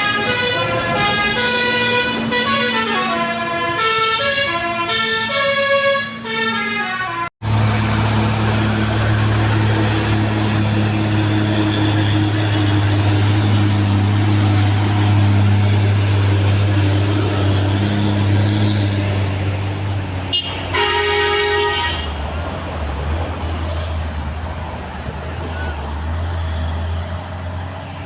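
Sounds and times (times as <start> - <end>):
vehicle horn toot: 0.0 - 7.2, 20.3 - 22.2
truck engine running: 7.0 - 23.0.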